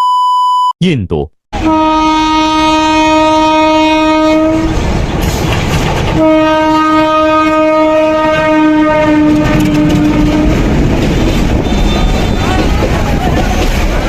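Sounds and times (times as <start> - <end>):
locomotive horn blasts: 1.6 - 4.8, 6.2 - 10.7, 11.6 - 12.4
train running noise: 3.1 - 14.0.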